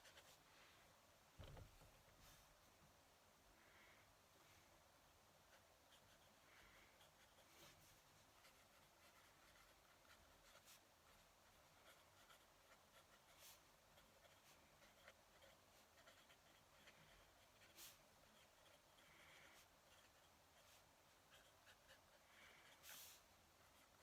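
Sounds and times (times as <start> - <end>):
pen nib scratching paper: 5.5 - 24.0.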